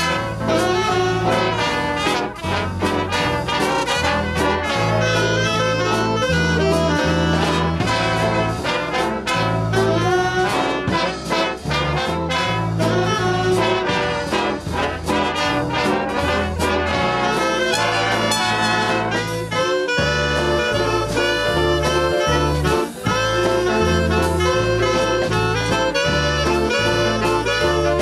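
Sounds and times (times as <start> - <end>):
swing band playing: 0.0 - 28.0.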